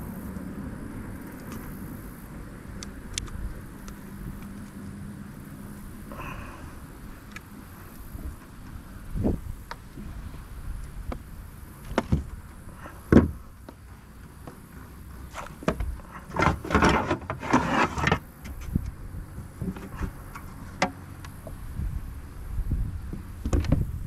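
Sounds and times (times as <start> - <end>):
rustling and scraping: 7.2 - 21.6.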